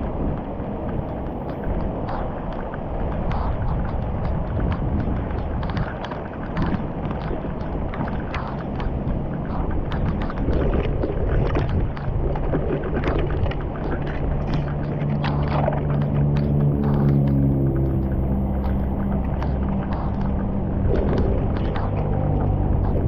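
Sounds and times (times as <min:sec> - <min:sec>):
floodwater rushing and splashing: 0:00.0 - 0:23.0
low hum: 0:00.0 - 0:23.0.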